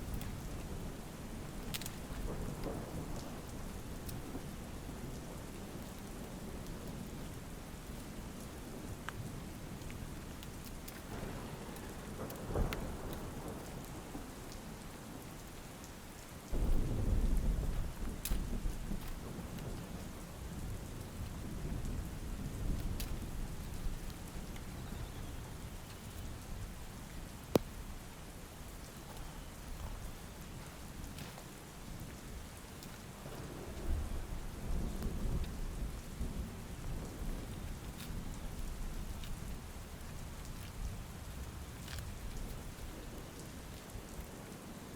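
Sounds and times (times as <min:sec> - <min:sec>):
thunder rumbling: 0:00.0 - 0:10.3, 0:11.0 - 0:15.2, 0:16.5 - 0:44.3
steady rain falling: 0:00.0 - 0:44.9
loud thunderclap: 0:16.5 - 0:20.1.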